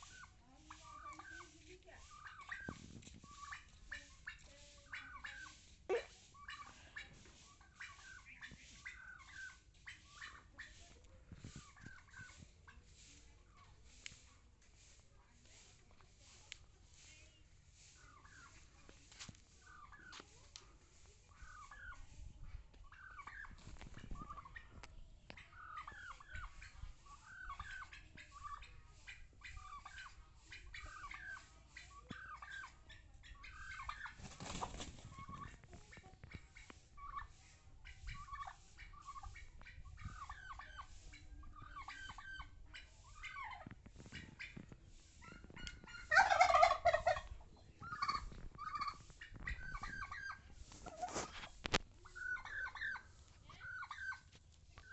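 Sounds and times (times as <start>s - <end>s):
fowl calling: 45.6s - 47.3s.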